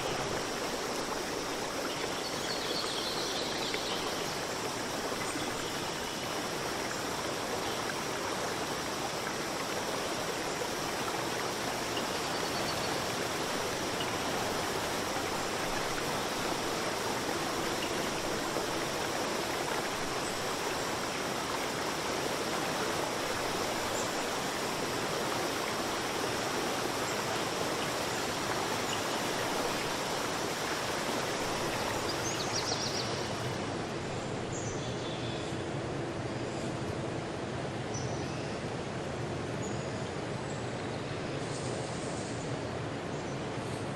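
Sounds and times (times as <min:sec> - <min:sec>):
stream water rushing: 0:00.0 - 0:34.9.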